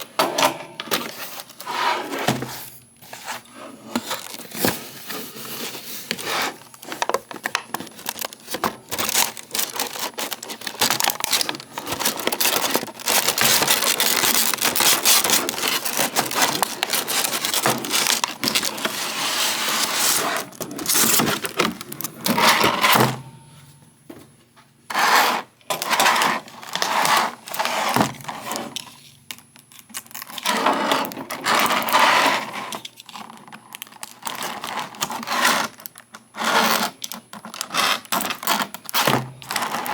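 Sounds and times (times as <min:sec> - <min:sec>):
packaging scrapes and knocks: 0:00.2 - 0:23.2, 0:34.0 - 0:39.9
cardboard and plastic rustling: 0:00.8 - 0:24.8, 0:25.7 - 0:39.9.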